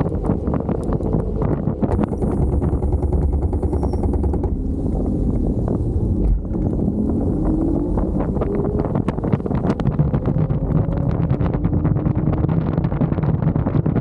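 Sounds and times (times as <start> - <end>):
small rattles and clicks: 0.0 - 6.8
low road rumble: 0.0 - 14.0
wind buffeting microphone: 0.0 - 14.0
motor whine rising in pitch: 1.9 - 13.2.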